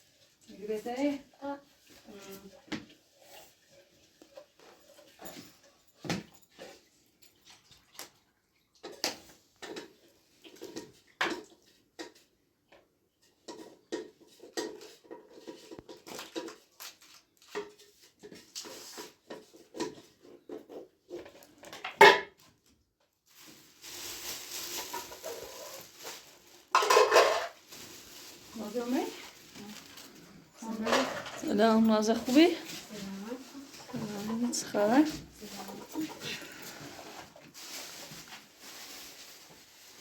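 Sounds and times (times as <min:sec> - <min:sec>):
dishes and utensils clattering: 0:13.2 - 0:16.7, 0:17.4 - 0:22.4, 0:24.6 - 0:27.8, 0:30.0 - 0:37.4.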